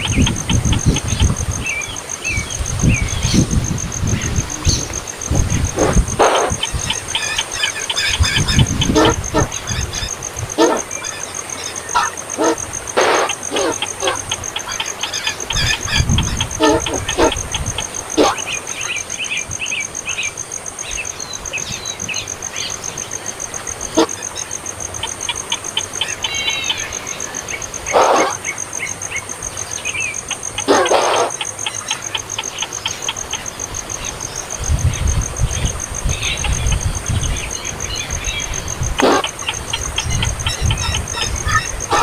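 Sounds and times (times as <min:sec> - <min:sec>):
small bird chirping: 0:00.0 - 0:23.3
pulsing insect trill: 0:00.0 - 0:42.0.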